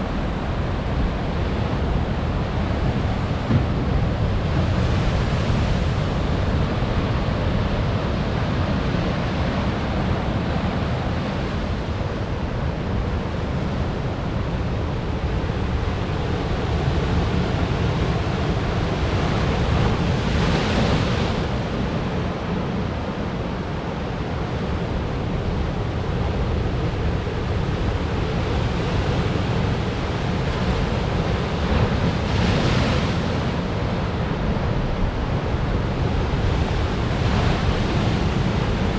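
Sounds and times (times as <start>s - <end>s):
wind buffeting microphone: 0.0s - 10.5s
ocean waves breaking on rocks: 26.1s - 38.9s.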